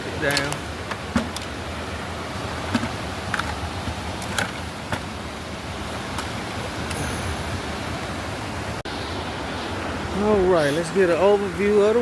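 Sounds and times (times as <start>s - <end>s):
light clicks and knocks: 0.2s - 1.5s.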